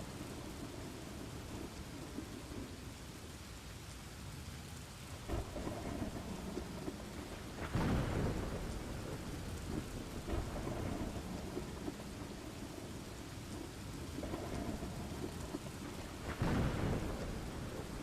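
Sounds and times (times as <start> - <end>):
steady rain: 0.0 - 18.0
rolling thunder: 5.3 - 18.0.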